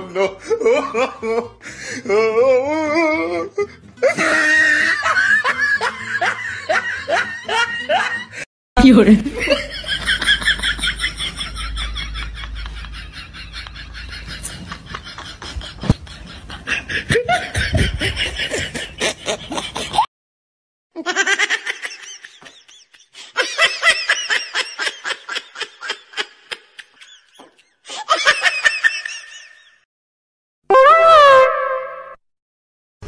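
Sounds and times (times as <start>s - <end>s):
canned laughter: 4.0s - 8.4s, 9.4s - 20.1s, 21.0s - 29.8s.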